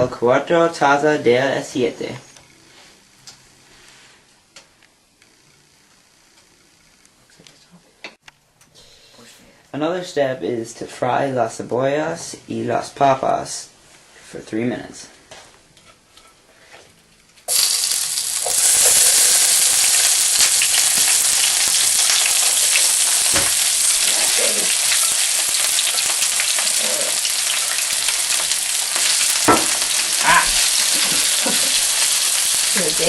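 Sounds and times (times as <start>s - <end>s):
potatoes sizzling in frying pan: 17.5s - 33.0s.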